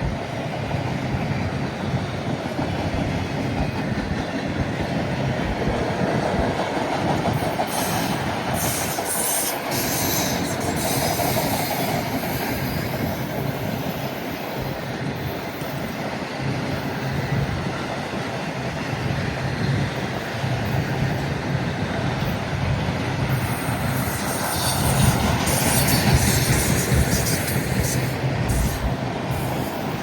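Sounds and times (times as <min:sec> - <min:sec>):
train wheels clacking: 0:00.0 - 0:30.0
wheels squealing on rail: 0:07.2 - 0:16.1, 0:23.2 - 0:30.0.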